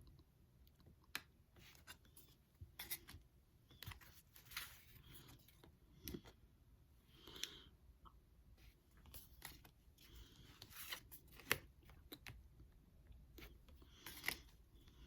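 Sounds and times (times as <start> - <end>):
cards rustling and tapping: 1.1 - 6.4, 9.0 - 12.4, 13.3 - 15.0.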